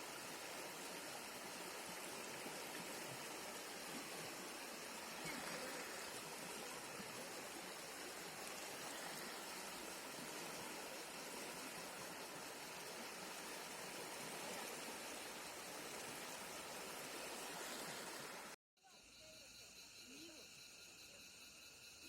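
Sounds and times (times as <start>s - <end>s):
river water rushing: 0.0s - 18.6s.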